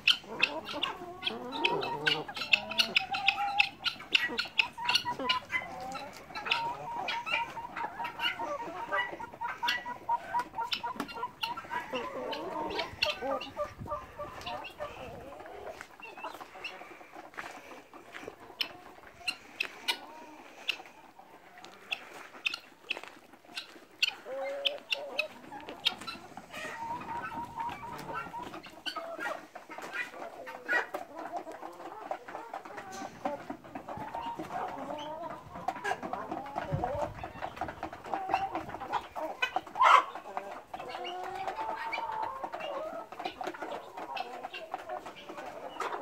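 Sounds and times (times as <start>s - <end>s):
chickens clucking: 0.0s - 46.0s.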